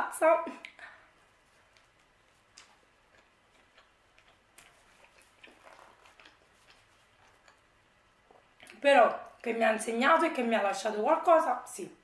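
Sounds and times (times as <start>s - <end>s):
faint chewing clicks and crunches: 0.6s - 9.5s.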